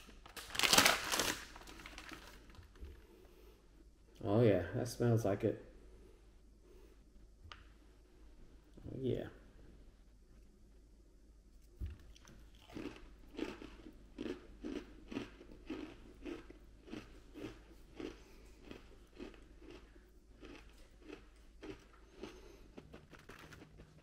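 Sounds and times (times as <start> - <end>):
cookie crunching chews: 12.0 - 24.0.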